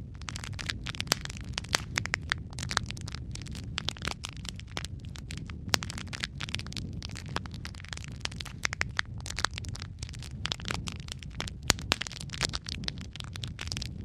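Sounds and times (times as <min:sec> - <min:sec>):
fire crackling and popping: 0:00.0 - 0:14.0.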